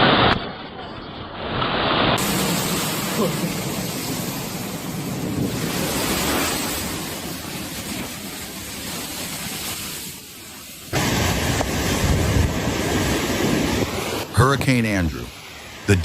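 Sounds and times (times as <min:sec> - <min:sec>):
wind and rain on microphone: 0:00.0 - 0:16.0.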